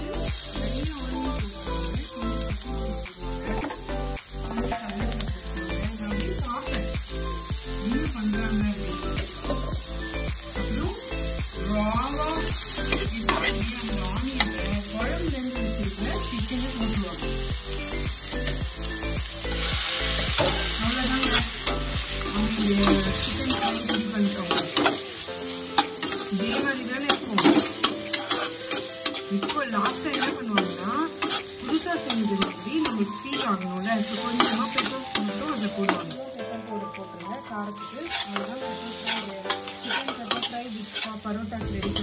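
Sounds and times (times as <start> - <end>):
onions sizzling in hot oil: 0.0 - 42.0
spatula scraping a pan: 26.0 - 35.0, 38.0 - 41.2.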